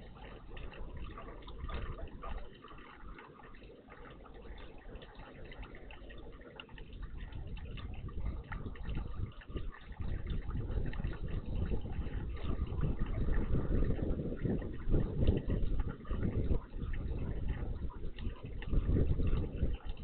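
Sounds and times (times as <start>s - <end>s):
water dripping in bird bath: 0.0s - 20.0s.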